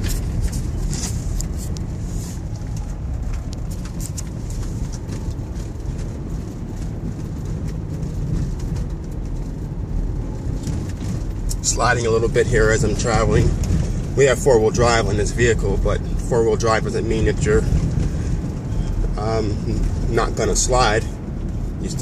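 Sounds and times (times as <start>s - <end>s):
engine and tyres rumbling: 0.0s - 22.0s.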